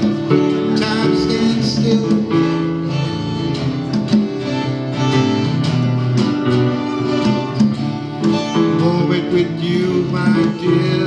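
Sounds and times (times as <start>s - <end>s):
live band playing: 0.0s - 11.0s
strummed guitar: 0.0s - 11.0s.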